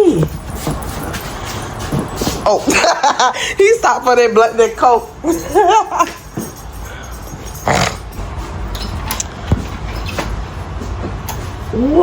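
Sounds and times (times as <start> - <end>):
dog breathy sound: 6.4 - 8.2.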